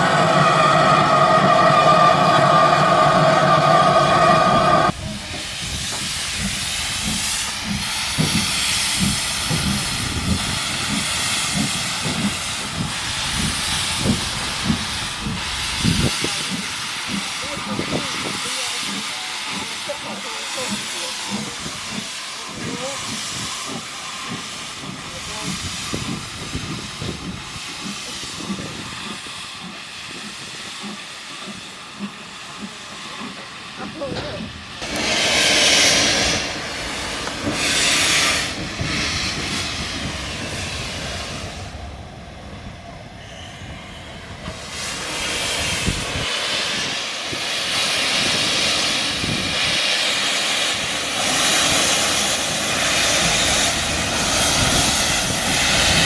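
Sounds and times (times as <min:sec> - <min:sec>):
steam locomotive whistle: 0:00.0 - 0:04.9
steam hissing: 0:00.0 - 0:56.0.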